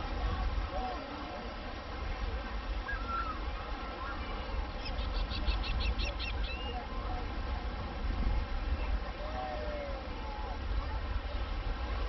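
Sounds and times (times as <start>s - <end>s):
beach surf rumbling: 0.0s - 12.0s
bird whistles: 2.9s - 3.4s.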